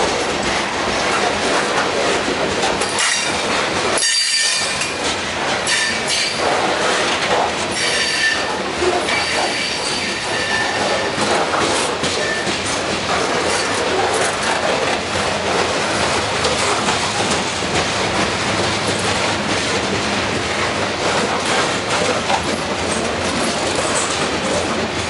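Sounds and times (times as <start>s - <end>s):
train wheels rumbling and rattling: 0.0s - 25.0s
high-pitched wheel squeal: 7.8s - 8.5s, 9.1s - 11.1s.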